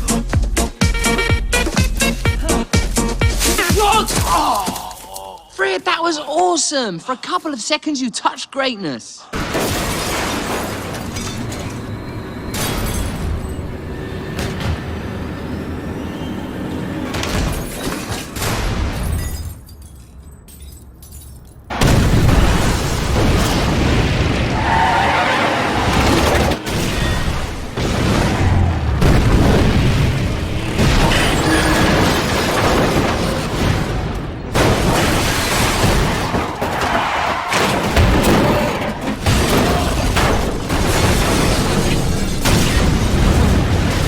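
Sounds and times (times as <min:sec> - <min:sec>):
film score music: 0:00.0 - 0:04.5
glass breaking: 0:09.4 - 0:13.6, 0:17.3 - 0:23.8, 0:29.3 - 0:37.0, 0:37.6 - 0:44.0
loud crashing and booming: 0:21.7 - 0:44.0.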